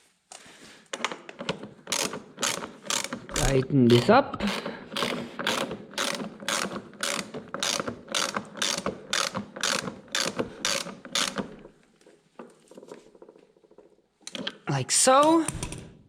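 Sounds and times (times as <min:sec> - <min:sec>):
ratchet wrench clicking: 0:01.9 - 0:11.6.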